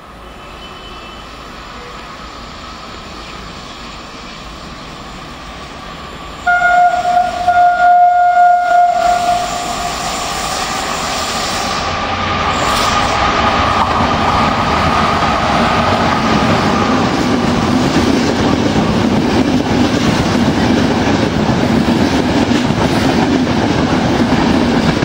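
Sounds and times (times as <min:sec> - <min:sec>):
train running noise: 0:00.0 - 0:25.0
locomotive horn blast: 0:06.4 - 0:10.2.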